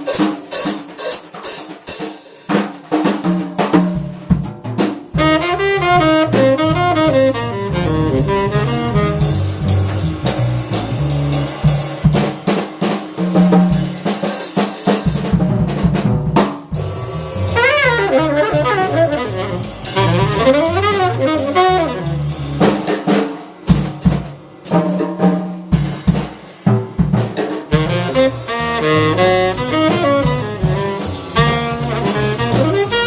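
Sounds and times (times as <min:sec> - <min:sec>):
drum kit: 0:00.0 - 0:33.0
bass: 0:03.8 - 0:14.2, 0:15.0 - 0:24.8, 0:25.7 - 0:33.0
tenor saxophone: 0:05.2 - 0:11.4, 0:16.8 - 0:22.9, 0:27.7 - 0:33.0.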